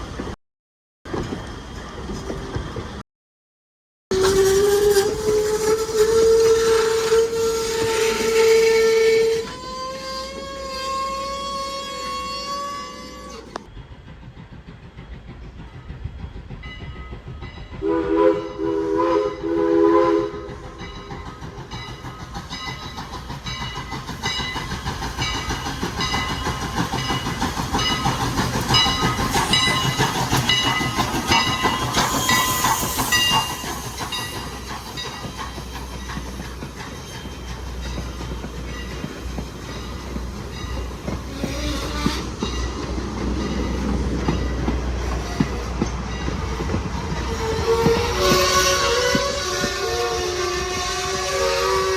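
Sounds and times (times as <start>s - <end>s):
train horn blasts: 4.1s - 13.6s, 17.8s - 20.6s, 41.3s - 42.4s, 47.2s - 51.9s
train wheels clicking on rail joints: 4.1s - 19.5s, 20.2s - 51.9s.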